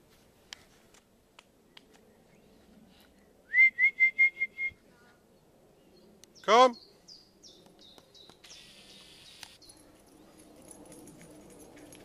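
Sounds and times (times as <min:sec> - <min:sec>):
faint paw ticks on dirt: 0:00.1 - 0:02.1.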